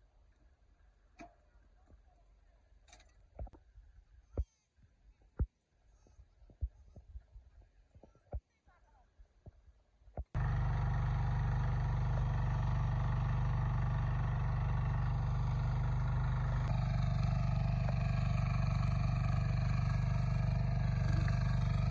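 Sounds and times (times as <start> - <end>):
tractor engine droning: 10.4 - 21.9.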